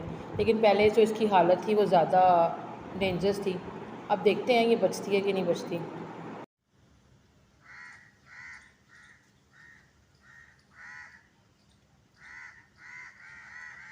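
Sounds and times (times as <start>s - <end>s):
crow cawing: 7.6s - 11.3s, 12.2s - 13.9s.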